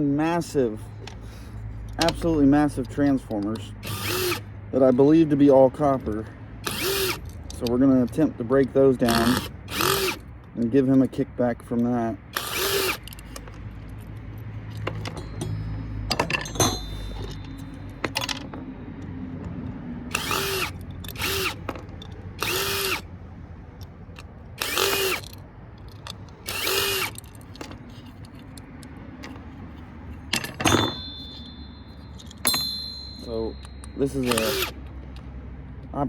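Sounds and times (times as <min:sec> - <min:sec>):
cordless drill running: 0:03.8 - 0:04.5, 0:06.6 - 0:07.2, 0:09.2 - 0:10.3, 0:12.4 - 0:13.1, 0:20.1 - 0:21.7, 0:22.4 - 0:23.1, 0:24.6 - 0:25.3, 0:26.4 - 0:27.2, 0:34.2 - 0:34.8
handling clatter: 0:12.4 - 0:18.7, 0:23.8 - 0:35.3.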